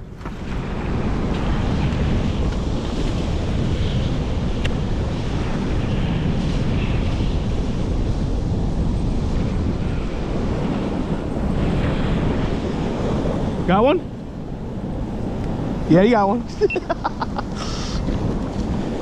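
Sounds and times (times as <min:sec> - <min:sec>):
wind buffeting microphone: 0:00.0 - 0:19.0
river current rushing: 0:15.2 - 0:19.0.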